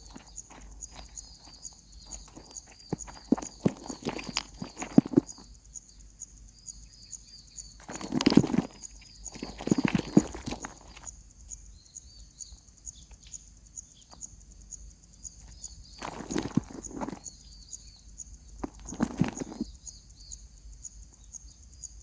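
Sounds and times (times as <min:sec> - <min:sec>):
scratching and rustling: 0:00.0 - 0:05.6, 0:07.8 - 0:11.1, 0:15.4 - 0:17.6, 0:18.5 - 0:19.8.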